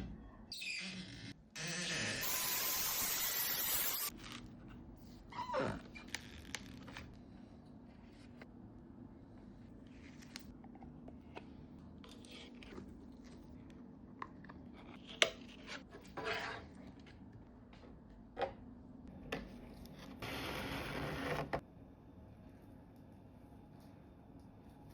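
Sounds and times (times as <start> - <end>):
tile scraping: 14.9 - 16.8.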